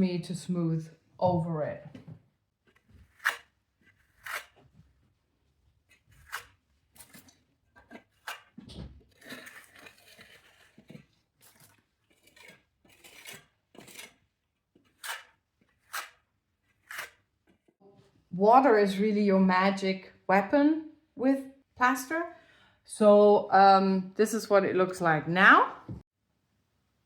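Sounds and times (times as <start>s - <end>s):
trowel scraping over plaster: 2.8s - 4.9s, 5.8s - 17.6s.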